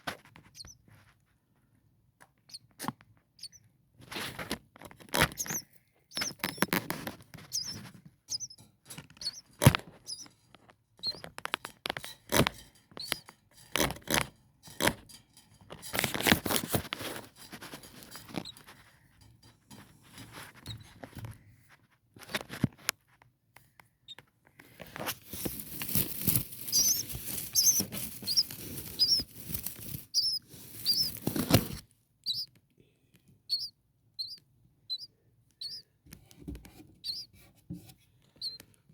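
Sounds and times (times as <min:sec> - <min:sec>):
rustling and clicking in nest: 0:00.0 - 0:38.9
nestlings peeping: 0:00.4 - 0:00.8, 0:02.4 - 0:13.8, 0:15.8 - 0:18.8, 0:24.0 - 0:37.4, 0:38.3 - 0:38.7.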